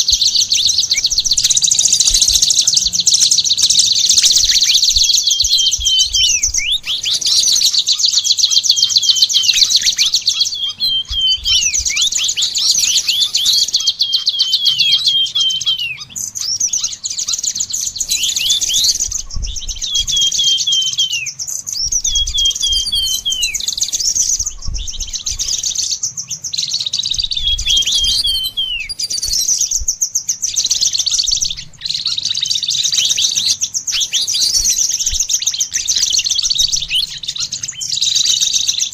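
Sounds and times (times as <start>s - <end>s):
high buzzy bird trill: 0.0s - 38.9s
songbirds singing: 0.0s - 38.9s.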